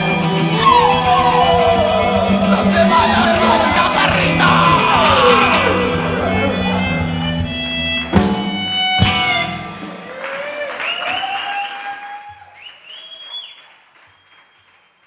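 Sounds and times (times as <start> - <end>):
high sliding notes ringing: 0.0 - 10.2
rock band playing: 0.0 - 10.8.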